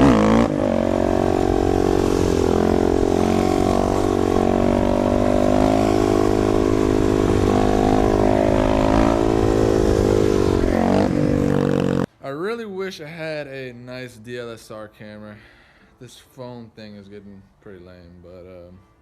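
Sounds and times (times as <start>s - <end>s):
motorcycle engine running: 0.0s - 12.1s.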